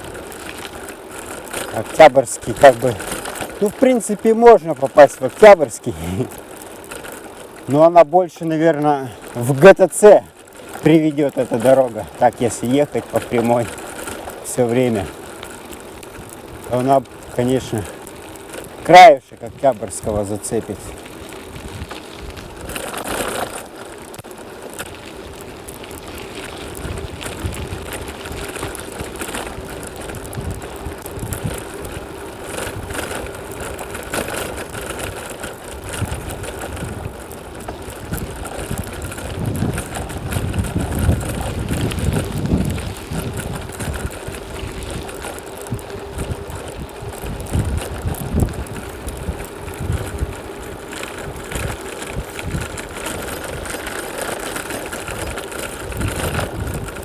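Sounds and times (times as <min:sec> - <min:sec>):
bicycle running noise: 0:00.0 - 0:57.0
wind buffeting microphone: 0:20.8 - 0:23.2, 0:24.8 - 0:57.0.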